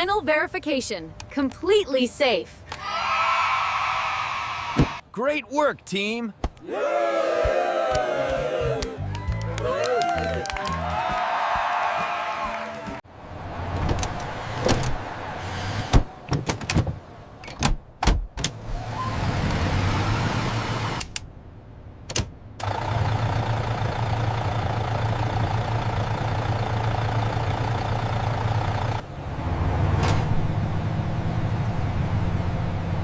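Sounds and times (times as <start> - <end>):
vehicle engine running: 22.6 - 29.2.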